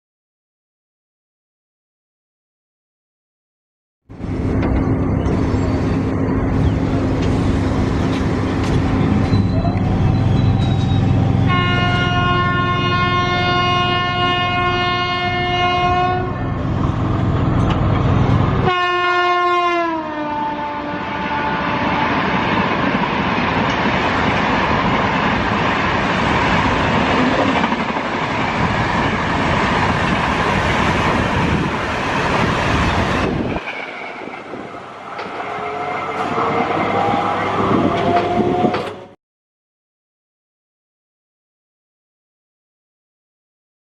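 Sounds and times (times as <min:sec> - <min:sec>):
train horn blast: 0:11.4 - 0:16.6, 0:18.6 - 0:22.3, 0:35.2 - 0:39.0.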